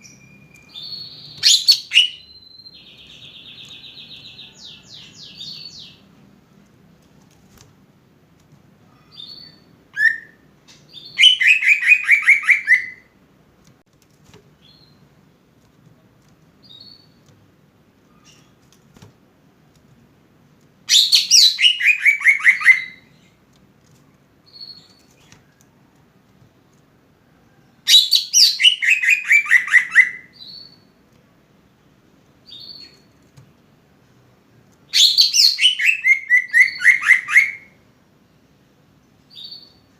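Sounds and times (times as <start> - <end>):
bird singing repeated falling notes: 0.0 - 6.1, 8.8 - 13.2, 14.4 - 15.3, 16.5 - 19.0, 20.8 - 23.4, 24.4 - 25.8, 27.7 - 31.0, 32.4 - 33.5, 34.8 - 37.8, 39.2 - 39.9.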